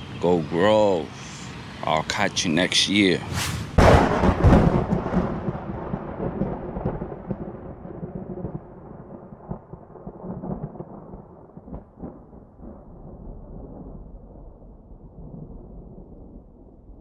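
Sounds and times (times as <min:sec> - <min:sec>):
deep rumbling boom: 0:03.4 - 0:09.6.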